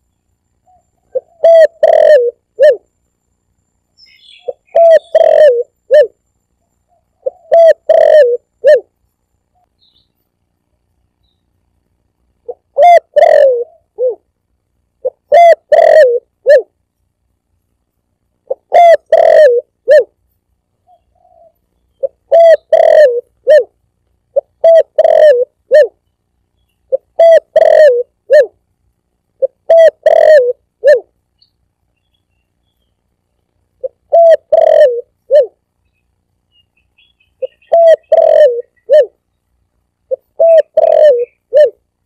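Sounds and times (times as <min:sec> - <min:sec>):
dove cooing: 0:00.6 - 0:02.9, 0:04.3 - 0:06.2, 0:06.9 - 0:08.9, 0:12.4 - 0:14.3, 0:15.0 - 0:16.8, 0:18.5 - 0:20.2, 0:20.8 - 0:26.0, 0:26.9 - 0:28.6, 0:29.4 - 0:31.2, 0:33.8 - 0:35.6, 0:37.0 - 0:39.2, 0:40.1 - 0:41.8.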